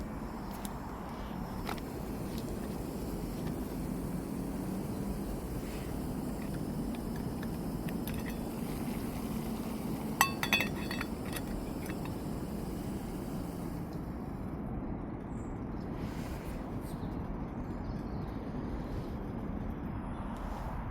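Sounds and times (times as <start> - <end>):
low background rumble: 0.0 - 20.9
camping kit clinking: 1.5 - 13.8.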